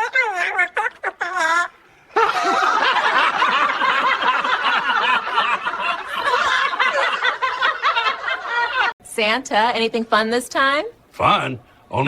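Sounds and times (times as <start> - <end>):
people laughing: 0.7 - 9.0.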